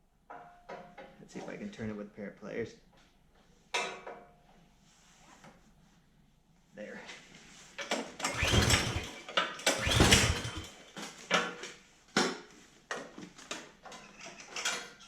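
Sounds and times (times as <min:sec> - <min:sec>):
recoil rope and handle clicks: 0:08.2 - 0:10.7
small engine cranking whir: 0:08.2 - 0:10.8.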